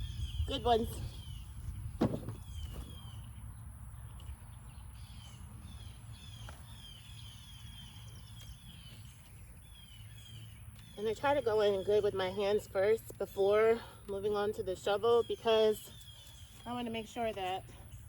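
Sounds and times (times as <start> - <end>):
bird chirping: 15.1 - 18.0.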